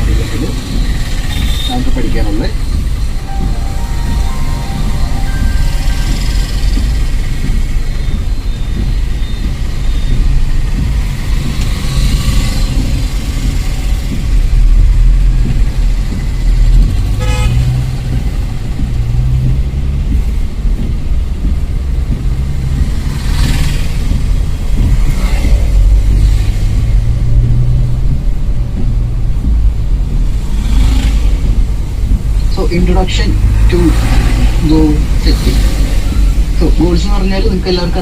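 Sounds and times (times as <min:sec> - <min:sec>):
car road rumble: 0:00.0 - 0:38.0
car horn toot: 0:17.2 - 0:17.8.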